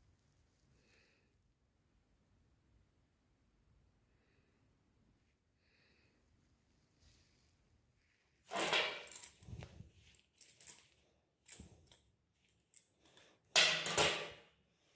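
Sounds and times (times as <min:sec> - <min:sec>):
metal objects rattling and knocking: 0:08.5 - 0:09.6, 0:13.6 - 0:14.4.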